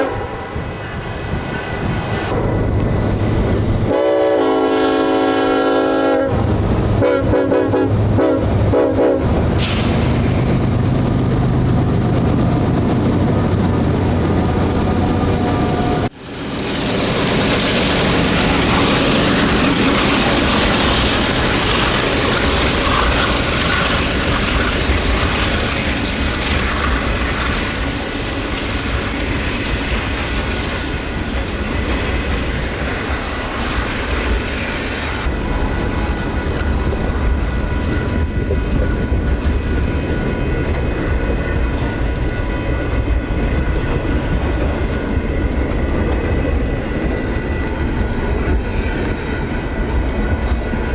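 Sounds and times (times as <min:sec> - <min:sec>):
train rumbling on tracks: 0:00.0 - 0:50.9.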